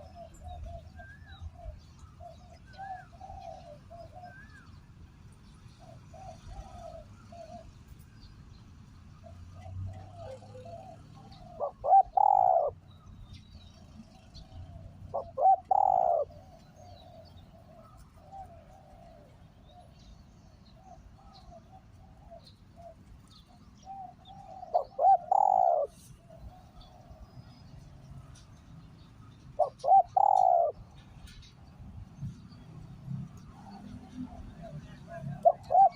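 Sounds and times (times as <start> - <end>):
dove cooing: 0.0 - 4.7, 5.7 - 7.8, 9.2 - 13.0, 14.0 - 27.9, 29.5 - 31.3, 33.5 - 35.9
faint dove cooing: 0.0 - 4.8, 5.8 - 7.9, 9.2 - 13.0, 13.9 - 28.5, 29.6 - 31.4, 33.4 - 35.9.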